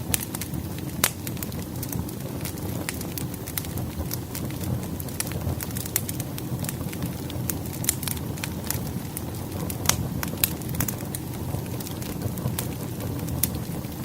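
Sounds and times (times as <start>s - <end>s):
fire crackling and popping: 0.0s - 14.0s
fire rumbling: 0.0s - 14.0s.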